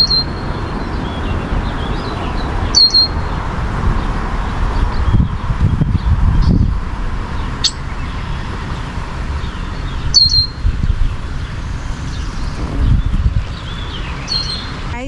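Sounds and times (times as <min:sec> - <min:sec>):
steady low rumble: 0:02.4 - 0:13.7
high bird chirps: 0:07.5 - 0:11.2.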